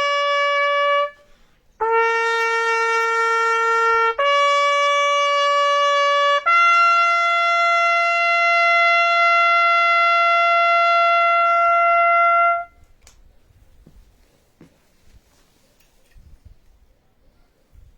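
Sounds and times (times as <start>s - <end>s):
brass instrument holding notes: 0.0s - 12.8s.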